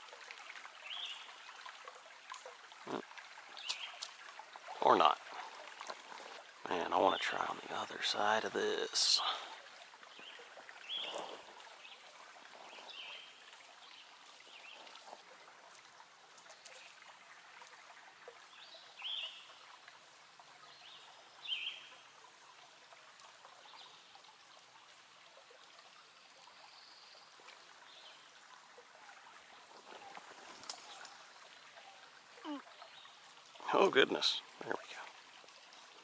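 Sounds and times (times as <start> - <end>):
creek water running: 0.0 - 36.0.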